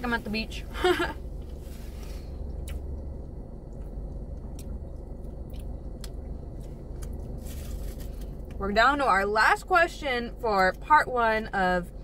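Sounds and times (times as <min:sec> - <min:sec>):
steady low hum: 0:00.0 - 0:12.0
wet mouth clicks: 0:02.6 - 0:02.9.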